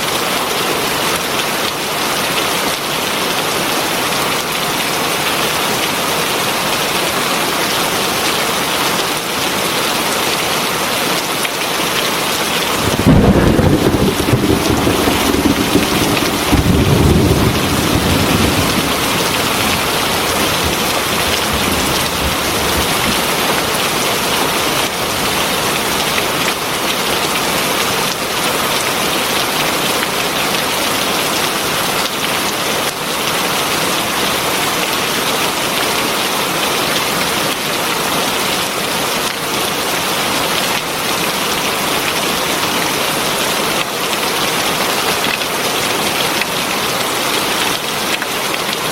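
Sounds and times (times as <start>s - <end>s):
heavy rain falling: 0.1s - 48.9s
thunder rumble: 12.6s - 23.9s.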